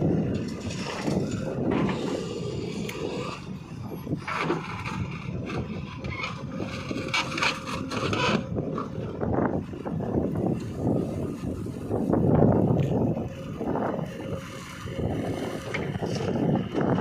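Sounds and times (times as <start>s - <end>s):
heavy diesel machinery running: 0.0s - 17.0s
scraping and rattling: 0.3s - 3.4s, 4.2s - 8.9s.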